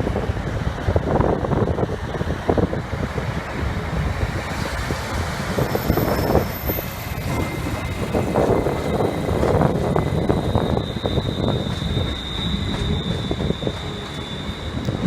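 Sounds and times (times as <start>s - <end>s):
train clatter: 0.0s - 15.0s
train rumble: 0.0s - 15.0s
faint high whine: 2.6s - 15.0s.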